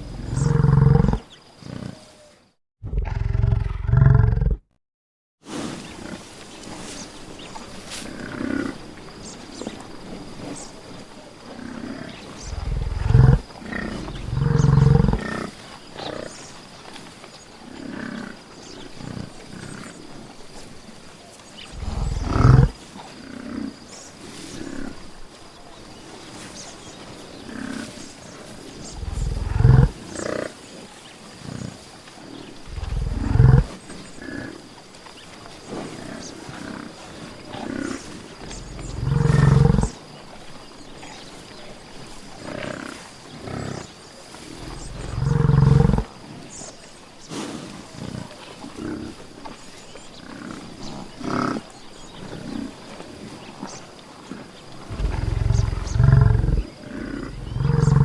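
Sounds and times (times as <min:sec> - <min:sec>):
buffalo bellowing: 0:12.5 - 0:15.2, 0:21.8 - 0:22.8, 0:28.9 - 0:30.0, 0:32.7 - 0:33.7, 0:38.4 - 0:39.9, 0:44.6 - 0:46.1, 0:54.9 - 0:58.0.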